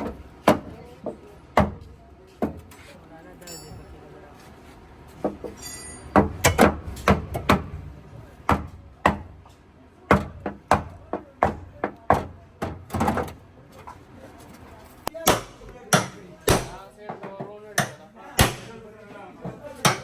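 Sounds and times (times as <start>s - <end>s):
hammer knocking on sheet metal: 8.5s - 9.3s, 10.1s - 13.3s, 15.2s - 16.8s, 17.8s - 18.8s.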